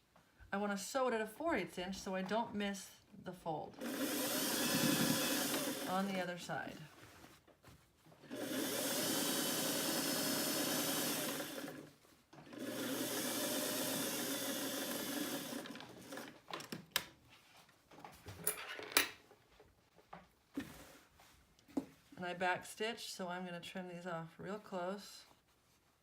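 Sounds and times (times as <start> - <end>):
sewing machine stitching: 3.8 - 6.2, 8.2 - 16.4.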